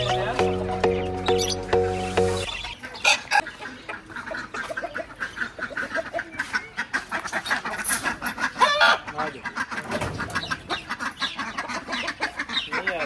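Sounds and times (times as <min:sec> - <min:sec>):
music sting: 0:00.0 - 0:02.8
hens clucking: 0:00.0 - 0:13.0.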